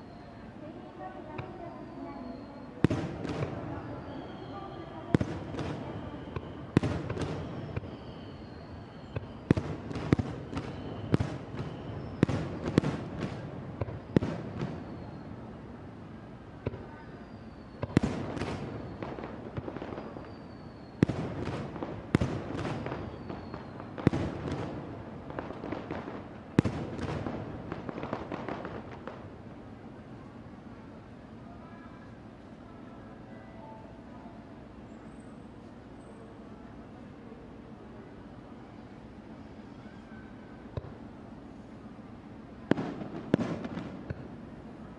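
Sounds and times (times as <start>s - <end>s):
high whistles falling in pitch: 1.4s - 12.9s, 22.6s - 24.1s.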